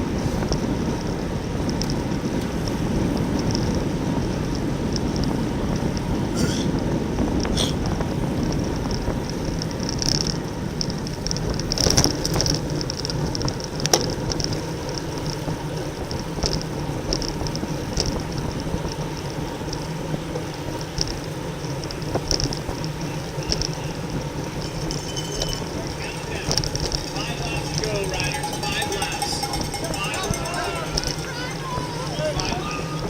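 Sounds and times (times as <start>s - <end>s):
bicycle ticking: 0.0s - 33.0s
wind rushing over microphone: 0.0s - 33.0s.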